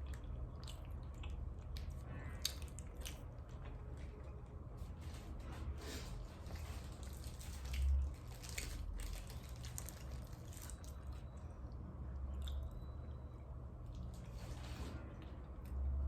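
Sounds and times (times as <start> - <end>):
biting and chewing: 0.0 - 4.3, 6.4 - 11.4.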